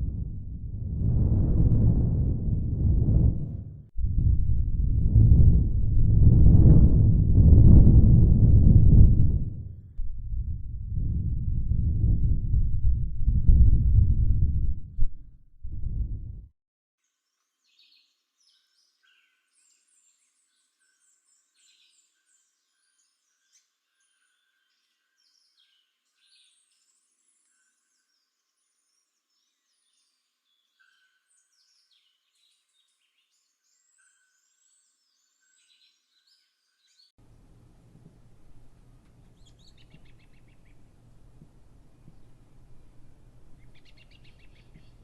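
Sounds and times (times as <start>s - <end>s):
low steady noise: 0.0s - 16.4s, 37.2s - 45.0s
birds chirping and whistling: 39.4s - 40.8s, 43.6s - 45.0s.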